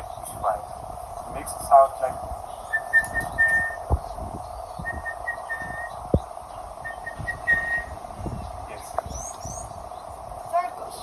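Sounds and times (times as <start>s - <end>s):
man whistling bird call: 2.6s - 3.9s, 4.8s - 6.0s, 6.8s - 8.0s.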